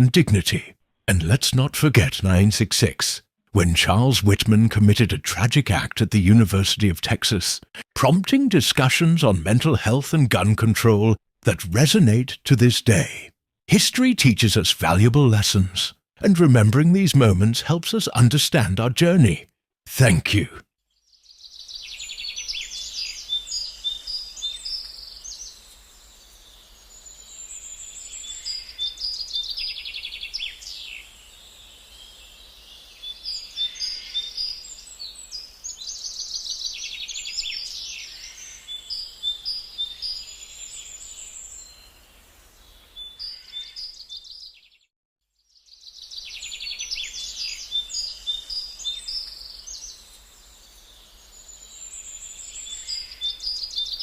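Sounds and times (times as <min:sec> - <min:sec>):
songbirds trilling and chirping: 0:21.0 - 0:44.8, 0:45.4 - 0:54.0.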